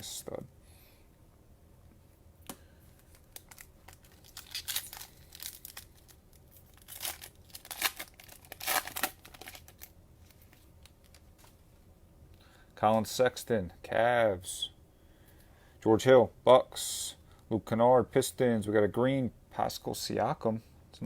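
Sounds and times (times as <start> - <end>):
plastic wrapper crinkling: 3.0 - 11.5.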